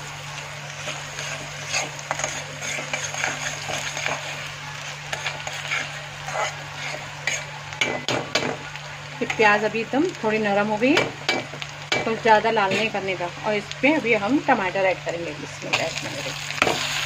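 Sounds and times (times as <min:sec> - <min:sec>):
steady low hum: 0:00.0 - 0:16.6
onions sizzling in oil: 0:00.0 - 0:17.0
metal spatula scraping pan: 0:00.8 - 0:08.1.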